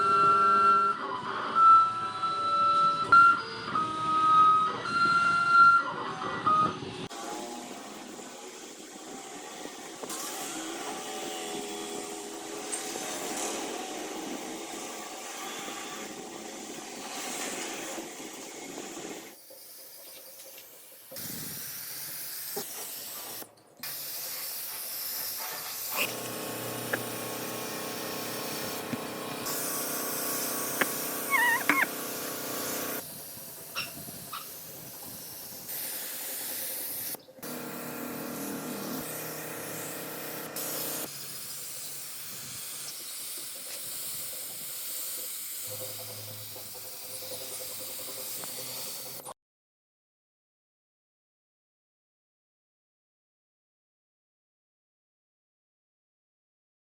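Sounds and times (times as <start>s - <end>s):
steady workshop hiss: 16.9s - 49.2s
brief warbling squeak: 31.3s - 31.9s.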